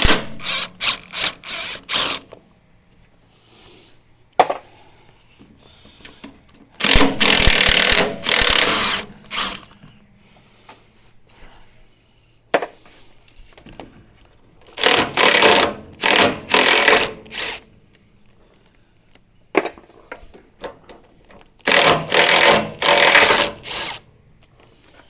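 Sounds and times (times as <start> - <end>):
impact driver rattling: 21.7 - 24.0.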